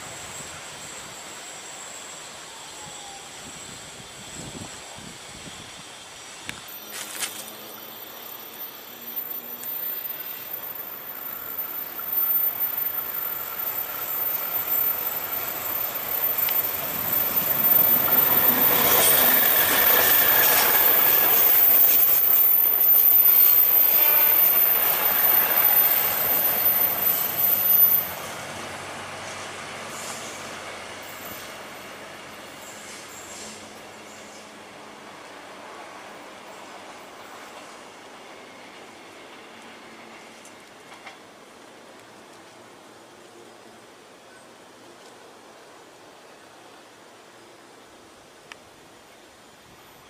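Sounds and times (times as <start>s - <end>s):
train wheels rumbling on rails: 4.0s - 42.9s
high-pitched wheel squeal: 6.8s - 28.4s.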